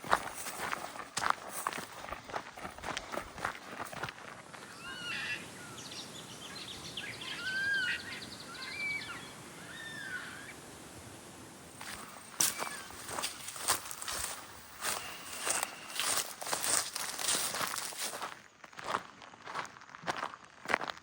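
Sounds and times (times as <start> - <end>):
steady background hiss: 4.5 - 16.8
birds whistling and chattering: 4.6 - 10.6, 11.8 - 17.8.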